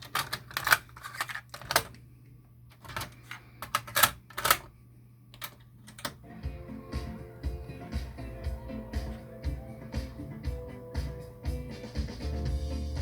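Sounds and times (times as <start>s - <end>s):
cassette deck mechanism clicks: 0.0s - 2.0s, 2.7s - 4.7s, 5.4s - 6.2s
steady low hum: 0.0s - 11.7s.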